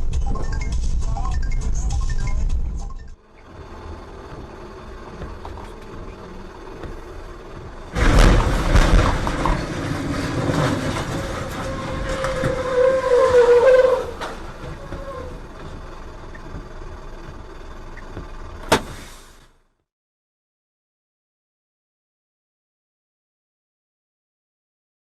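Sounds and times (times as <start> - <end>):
road vehicle noise: 0.0 - 19.8.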